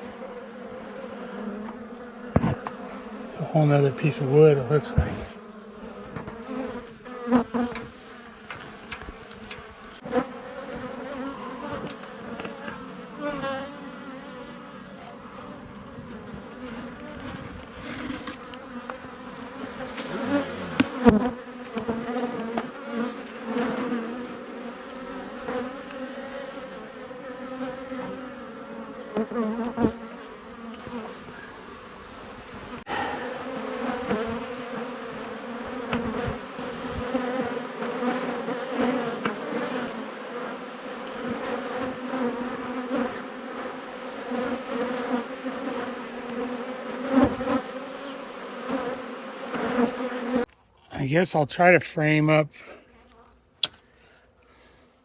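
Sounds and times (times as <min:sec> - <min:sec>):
bees buzzing: 0:00.0 - 0:52.4
sharp knocks: 0:02.3 - 0:02.7.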